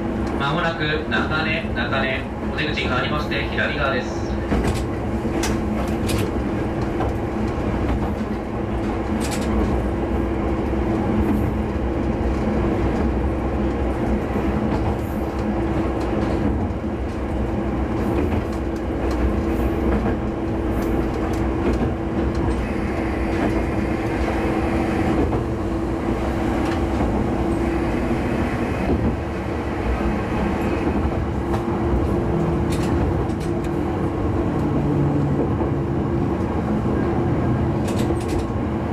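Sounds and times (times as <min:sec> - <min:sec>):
diesel railcar engine drone: 0:00.0 - 0:38.9
wheels clicking over rail joints: 0:30.5 - 0:33.9.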